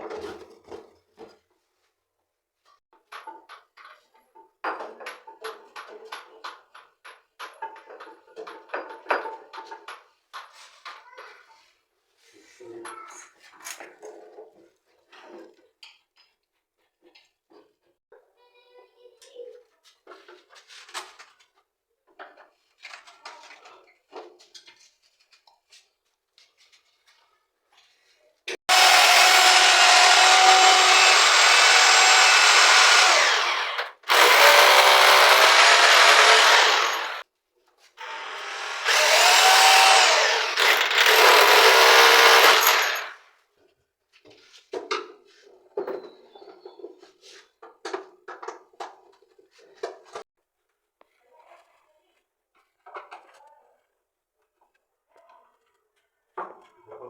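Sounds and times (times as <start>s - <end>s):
electric drill running: 28.7s - 37.2s, 38.0s - 43.2s.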